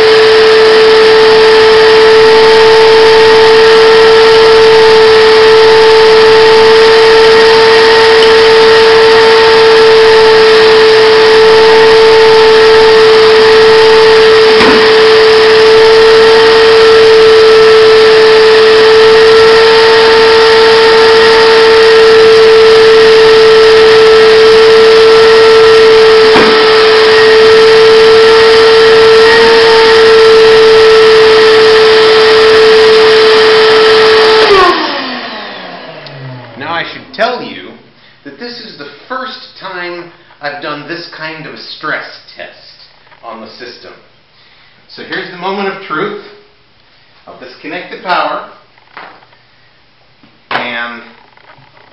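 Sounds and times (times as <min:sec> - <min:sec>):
shop vac motor whining: 0:00.0 - 0:39.8.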